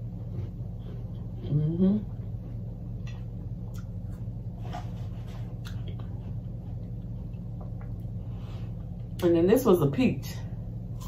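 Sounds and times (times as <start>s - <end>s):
steady low hum: 0.0s - 11.0s
soft chewing and mouth clicks: 0.2s - 8.2s.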